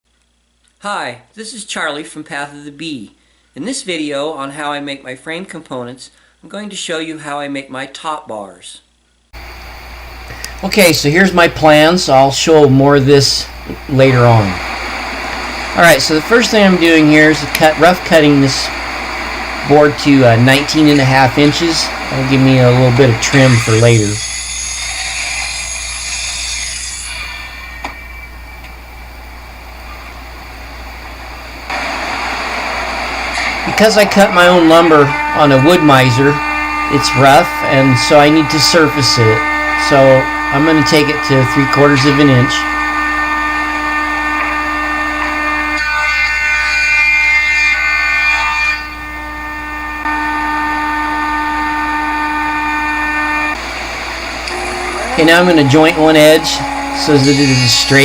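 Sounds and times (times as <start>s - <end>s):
low steady hum: 9.3s - 45.9s, 48.8s - 58.0s
power saw motor whining: 9.4s - 58.0s
thickness planer cutting board: 16.1s - 27.1s, 53.6s - 58.0s.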